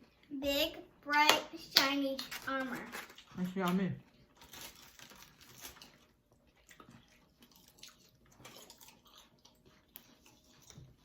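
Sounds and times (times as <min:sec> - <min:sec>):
quiet chewing: 0:04.2 - 0:11.0.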